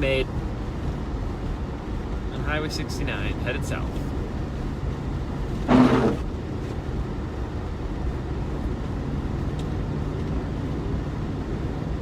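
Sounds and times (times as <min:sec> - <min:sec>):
vehicle engine and tyre rumble: 0:00.0 - 0:12.0
windshield wiper squeak: 0:05.6 - 0:06.2.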